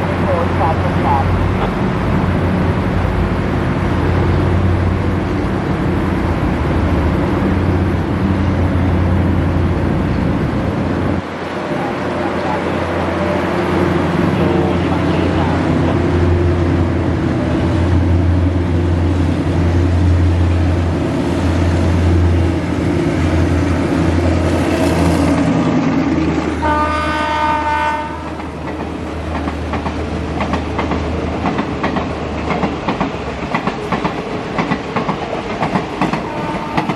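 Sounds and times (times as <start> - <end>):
diesel train engine humming: 0.0 - 36.9
train horn blast: 26.6 - 28.4, 36.2 - 36.9
wheels clacking over rail joints: 28.2 - 36.9.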